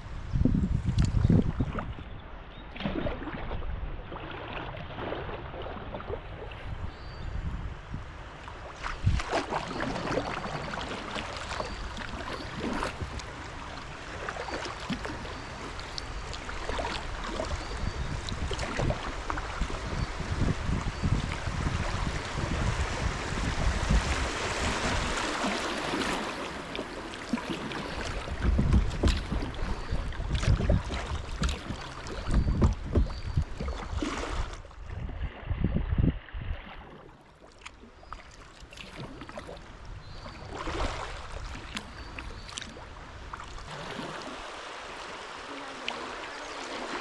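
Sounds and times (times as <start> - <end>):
wind rumble on microphone: 0.0 - 37.1, 38.8 - 43.9
water splashing around kayak: 0.0 - 47.0
paddle knocks: 24.2 - 33.8.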